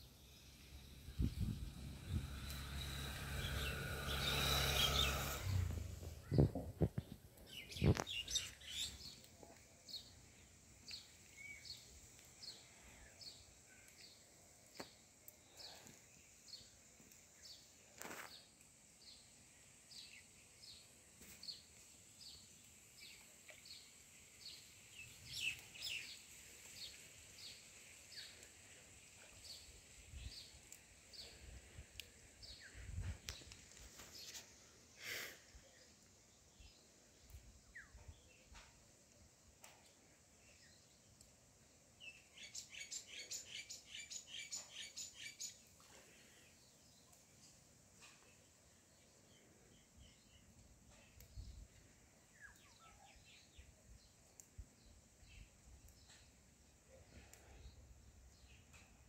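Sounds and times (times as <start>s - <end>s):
bird chirping: 0.0s - 9.3s, 42.0s - 45.7s.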